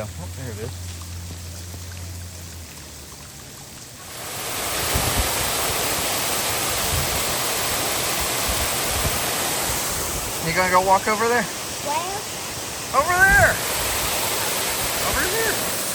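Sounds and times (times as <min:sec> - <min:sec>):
waterfall rushing: 0:00.0 - 0:15.9.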